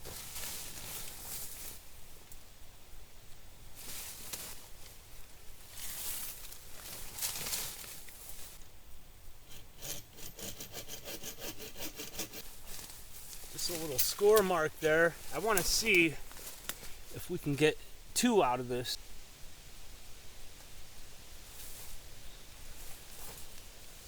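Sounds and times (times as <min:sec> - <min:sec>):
hand saw cutting wood: 0:09.5 - 0:12.5.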